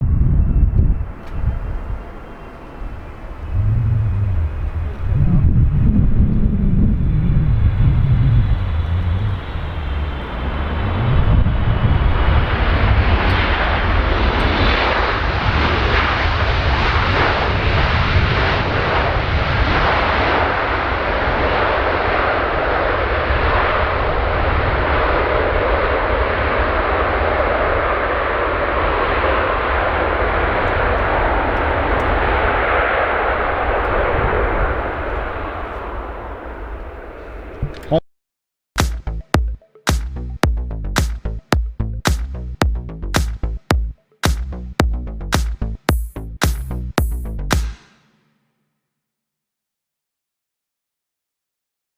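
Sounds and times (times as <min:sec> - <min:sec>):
jet engines of landing aircraft: 0:00.0 - 0:38.0.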